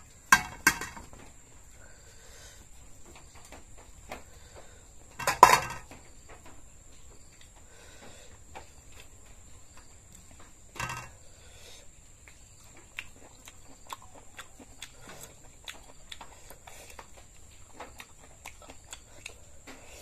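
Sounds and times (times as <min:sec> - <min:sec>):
chewing and lip-smacking: 0:12.2 - 0:20.0.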